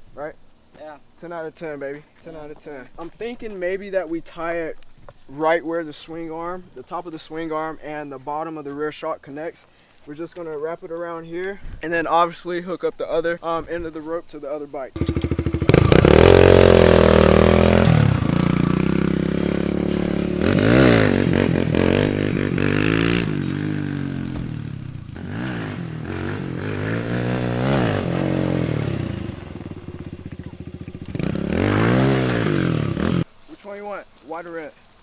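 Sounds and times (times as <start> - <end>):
dirt bike engine revving: 15.0 - 33.3.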